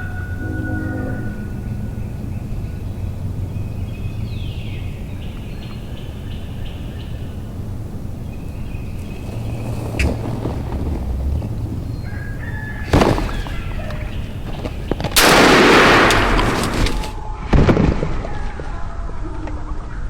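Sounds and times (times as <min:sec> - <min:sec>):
turkey gobbling: 0:04.1 - 0:15.0.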